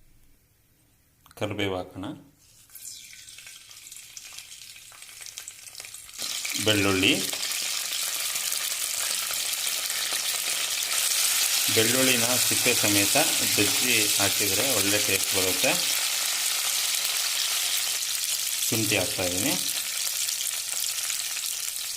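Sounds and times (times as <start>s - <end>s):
hot oil sizzling in a pan: 2.6s - 21.9s.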